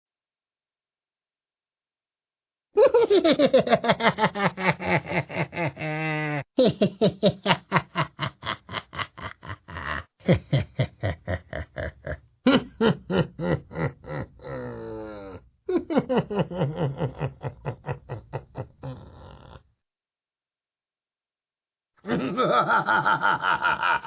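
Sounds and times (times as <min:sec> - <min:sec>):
man laughing mockingly: 0:02.8 - 0:19.6, 0:22.0 - 0:24.0.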